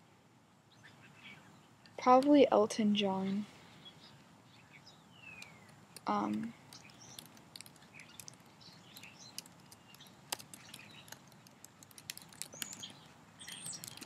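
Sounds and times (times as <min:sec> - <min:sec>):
small sharp clicks: 0:05.3 - 0:14.0.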